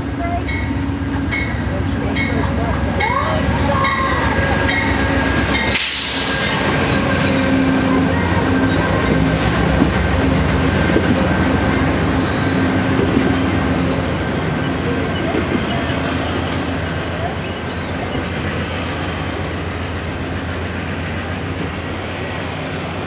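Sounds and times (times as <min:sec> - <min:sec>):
train wheels rumbling on rail: 0:00.0 - 0:23.0
train wheel squeals: 0:13.3 - 0:20.8.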